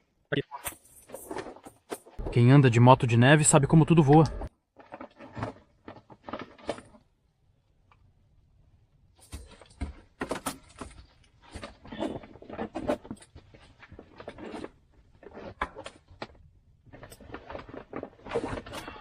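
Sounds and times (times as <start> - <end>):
rustling of bags and fabric: 9.1 - 19.0.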